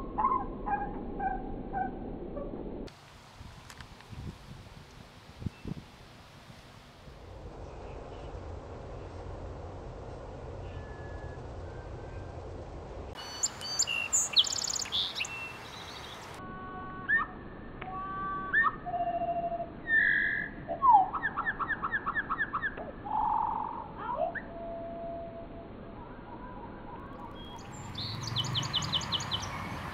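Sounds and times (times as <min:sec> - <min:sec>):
slowed birdsong whistles and trills: 0:10.5 - 0:29.9
bird chirping: 0:13.2 - 0:16.4, 0:27.2 - 0:29.9.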